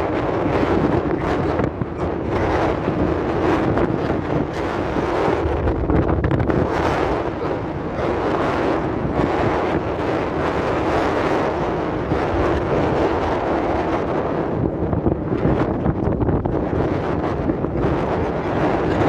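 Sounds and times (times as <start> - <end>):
low rumble: 0.0 - 10.8
wind buffeting microphone: 0.0 - 19.0.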